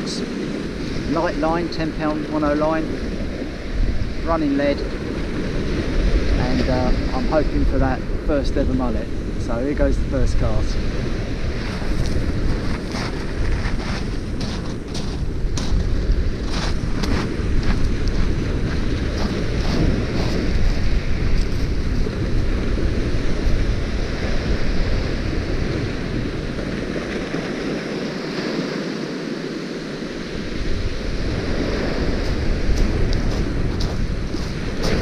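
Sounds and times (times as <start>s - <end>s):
waves breaking on beach: 0.0s - 35.0s
wind buffeting microphone: 0.0s - 35.0s.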